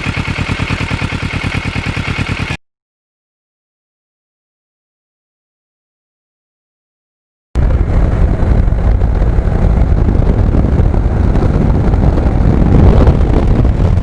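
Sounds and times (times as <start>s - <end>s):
motorcycle engine rumble: 0.0s - 2.6s, 7.6s - 14.0s
wind buffeting microphone: 7.6s - 14.0s.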